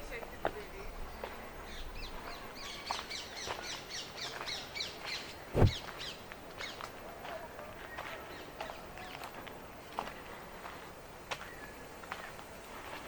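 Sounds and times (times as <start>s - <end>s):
loud thud: 5.6s - 5.8s.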